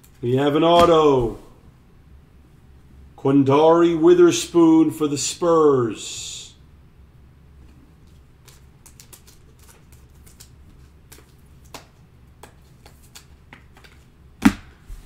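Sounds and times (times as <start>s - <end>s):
cards clicking against each other: 8.4s - 14.0s.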